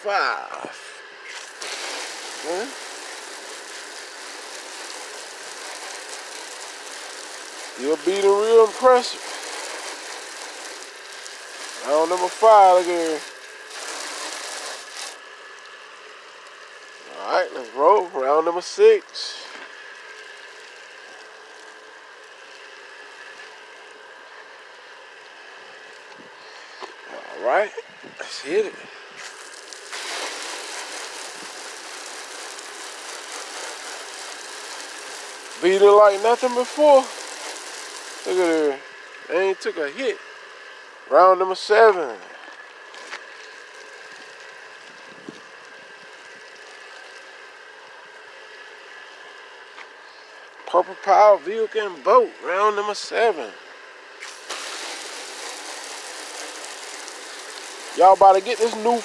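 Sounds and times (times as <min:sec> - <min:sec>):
pressure washer spraying: 0:01.2 - 0:15.2, 0:29.2 - 0:38.8, 0:54.2 - 0:59.0.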